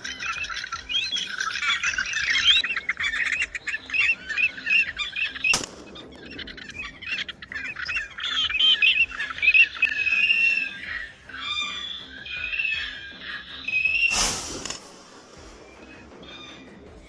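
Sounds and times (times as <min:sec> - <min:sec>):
flock of birds chirping: 0:00.0 - 0:17.0
sharp snap: 0:05.5 - 0:06.0, 0:14.1 - 0:15.2.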